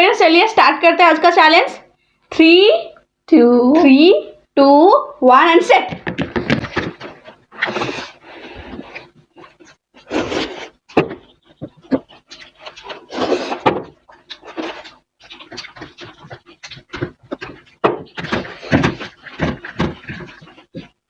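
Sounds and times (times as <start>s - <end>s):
chewing and mouth smacks: 11.5s - 21.0s.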